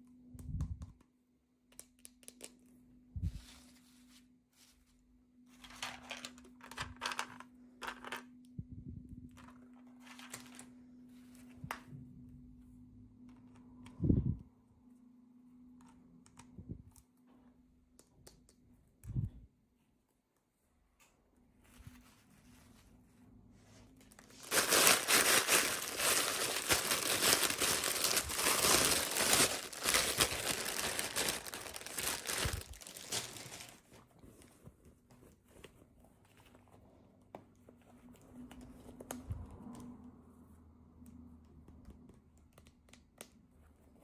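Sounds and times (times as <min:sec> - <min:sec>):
plastic packaging crinkling and tearing: 0:09.4 - 0:10.7, 0:24.1 - 0:34.4.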